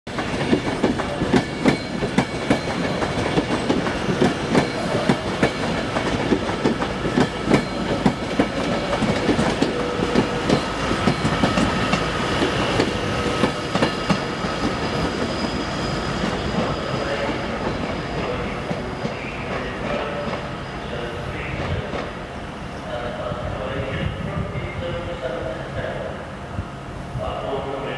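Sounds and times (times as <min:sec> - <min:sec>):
train wheels clacking over rail joints: 0:00.1 - 0:15.5
train rumble: 0:00.1 - 0:27.9.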